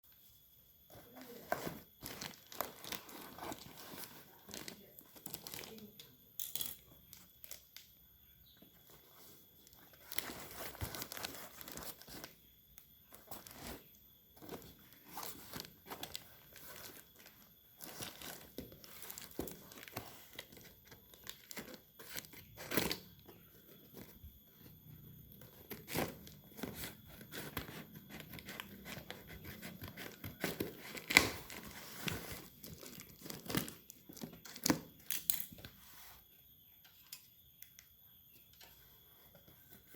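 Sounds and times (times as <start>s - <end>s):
packaging rustling and tearing: 1.1s - 5.8s, 9.9s - 12.4s, 14.4s - 23.1s, 25.6s - 34.8s.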